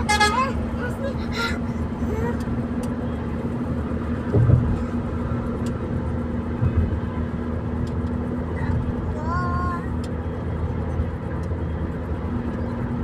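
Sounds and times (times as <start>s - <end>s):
car engine and road noise: 0.0s - 13.0s
short low thump: 4.3s - 4.8s.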